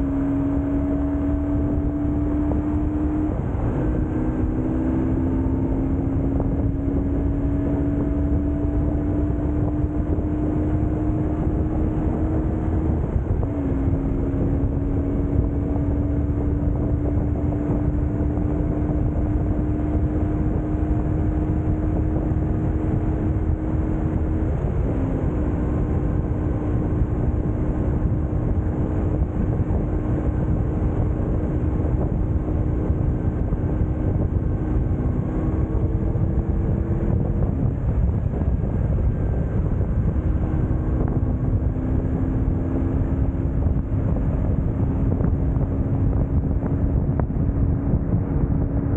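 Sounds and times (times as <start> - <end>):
motorcycle engine running: 0.0 - 48.9
wind and road noise: 0.0 - 48.9.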